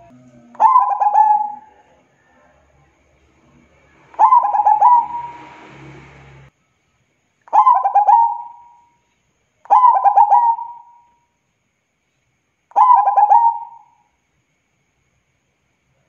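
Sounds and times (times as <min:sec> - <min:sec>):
dove cooing: 0:00.0 - 0:01.8, 0:04.2 - 0:05.4, 0:07.5 - 0:08.7, 0:09.7 - 0:11.0, 0:12.8 - 0:13.9.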